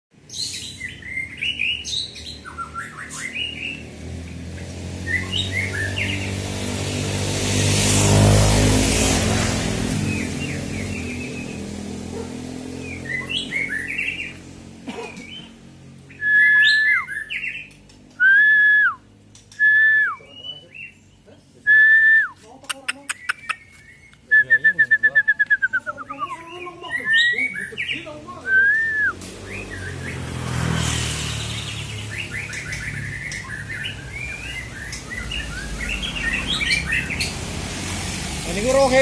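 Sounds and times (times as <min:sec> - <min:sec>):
songbird singing: 0:00.1 - 0:07.3, 0:08.9 - 0:37.7
higher bird chirps: 0:00.2 - 0:06.5, 0:12.6 - 0:14.6, 0:15.2 - 0:22.1, 0:22.8 - 0:37.6
bird whistled notes: 0:00.4 - 0:03.8, 0:16.1 - 0:20.7, 0:31.7 - 0:37.3
low engine hum: 0:00.9 - 0:16.6.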